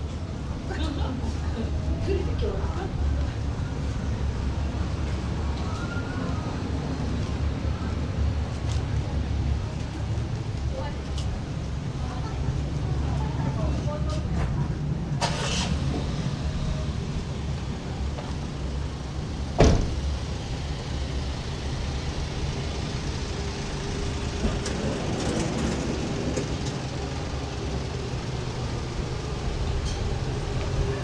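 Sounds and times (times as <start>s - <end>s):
vehicle engine humming: 0.0s - 31.0s.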